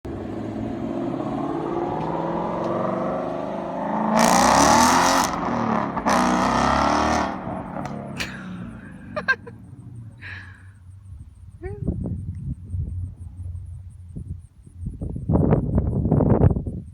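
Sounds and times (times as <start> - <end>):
car accelerating past: 0.1 - 10.5.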